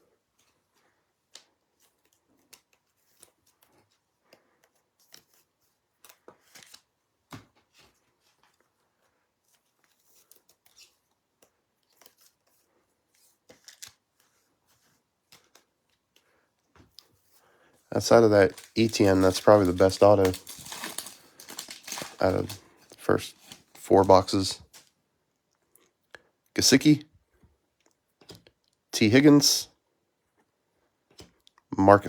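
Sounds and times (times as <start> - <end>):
trading cards clicking and rustling: 9.8 - 14.4, 15.3 - 16.2, 18.0 - 24.9.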